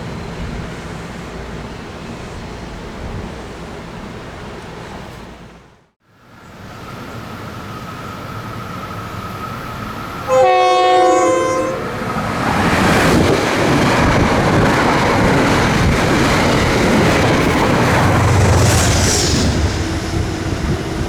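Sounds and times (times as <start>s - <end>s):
train wheels rolling on rails: 6.5s - 21.0s
train horn blast: 10.2s - 12.2s.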